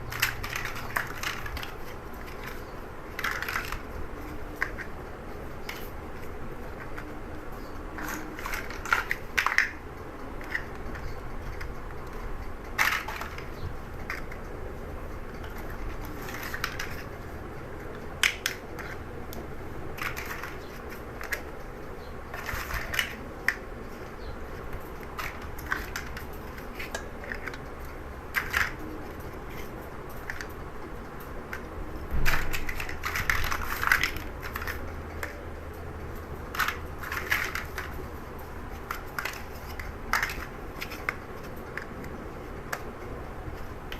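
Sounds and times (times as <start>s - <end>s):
low steady hum: 0.0s - 43.9s
plastic bricks snapping together: 8.0s - 9.8s, 12.8s - 14.4s, 18.2s - 19.0s, 22.3s - 23.6s, 28.4s - 28.8s, 31.5s - 35.4s, 36.5s - 37.9s, 38.9s - 41.9s.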